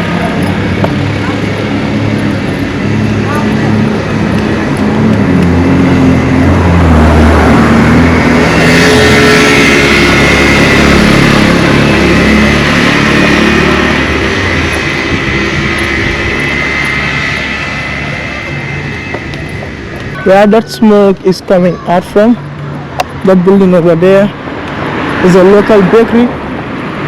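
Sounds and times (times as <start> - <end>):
vehicle engine running: 0.0 - 20.6
road noise: 0.0 - 27.0.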